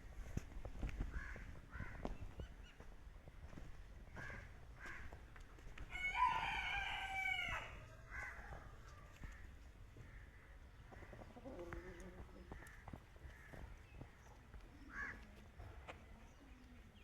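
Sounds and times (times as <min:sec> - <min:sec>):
rooster crowing: 0:05.9 - 0:09.3.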